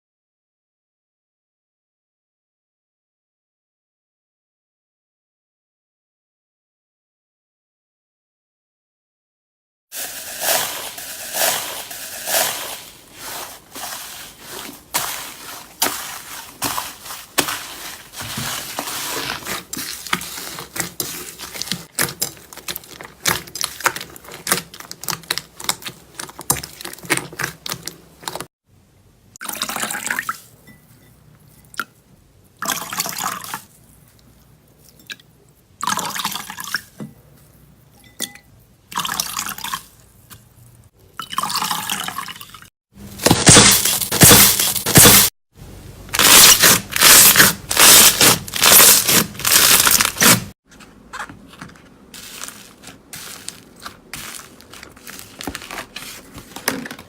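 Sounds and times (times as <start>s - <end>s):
hands squishing slime: 10.3s - 28.4s, 51.1s - 57.0s.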